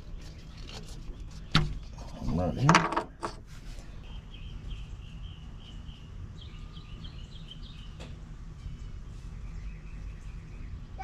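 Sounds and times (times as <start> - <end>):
small bird chirping: 3.8 - 11.0.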